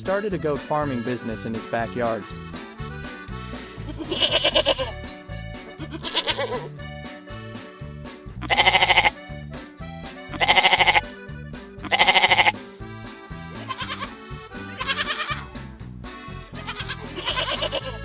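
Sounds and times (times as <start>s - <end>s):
background music with bass line: 0.0s - 18.0s
goats bleating: 3.8s - 5.1s, 5.8s - 6.8s, 8.4s - 9.3s, 10.2s - 11.2s, 11.8s - 12.6s, 13.5s - 15.6s, 16.5s - 18.0s.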